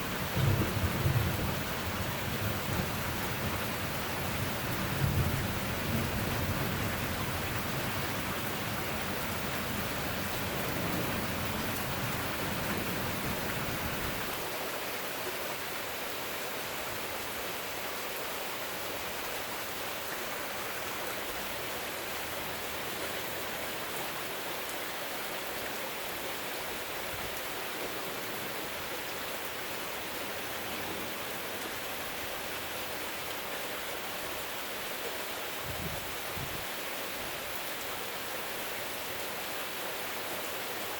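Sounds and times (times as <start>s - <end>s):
steady rain hiss: 0.0s - 40.9s
low rumble of thunder: 0.1s - 14.3s.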